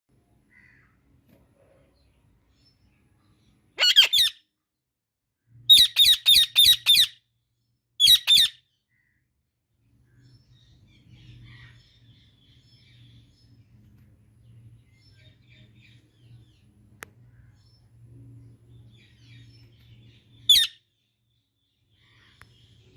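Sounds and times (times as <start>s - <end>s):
parakeet squawking: 3.8s - 4.4s, 5.7s - 7.2s, 8.0s - 8.6s, 20.5s - 20.8s
faint low hum: 8.9s - 22.9s.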